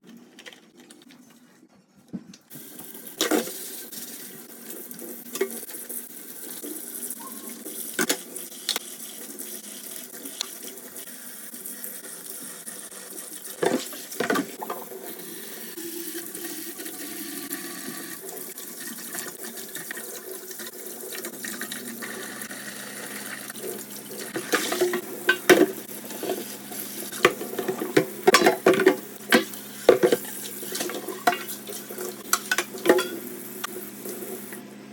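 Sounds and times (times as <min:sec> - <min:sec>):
tap water running into sink: 0:02.5 - 0:34.6
dishes and pans clinking: 0:24.4 - 0:26.4, 0:27.2 - 0:31.5, 0:32.3 - 0:33.3.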